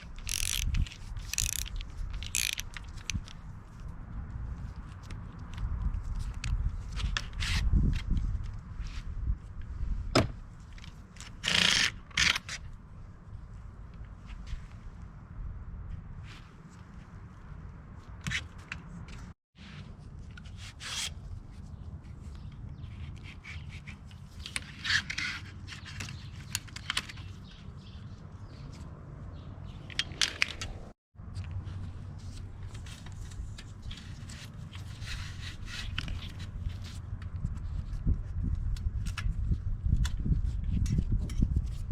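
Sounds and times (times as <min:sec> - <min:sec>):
tools clicking and scraping on bicycle: 0:00.0 - 0:03.9, 0:22.2 - 0:28.9, 0:29.6 - 0:41.9.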